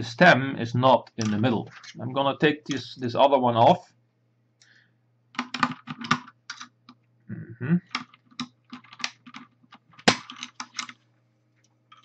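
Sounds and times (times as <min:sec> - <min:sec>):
plastic keycaps clacking: 0:05.4 - 0:06.7, 0:07.9 - 0:10.9.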